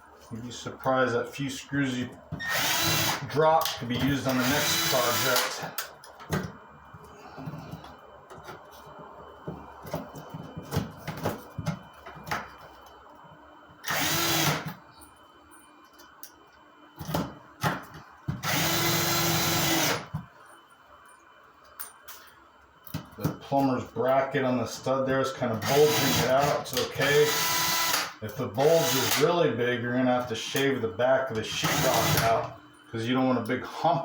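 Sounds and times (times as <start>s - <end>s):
power drill driving screws: 2.4s - 3.3s, 4.3s - 5.6s, 13.8s - 14.7s, 18.4s - 20.0s, 25.6s - 29.2s, 31.6s - 32.4s.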